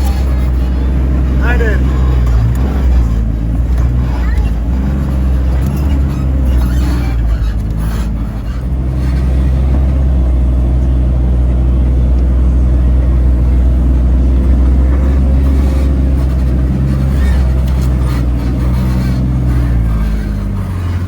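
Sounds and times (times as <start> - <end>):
engine droning at low revs: 0.0 - 21.0.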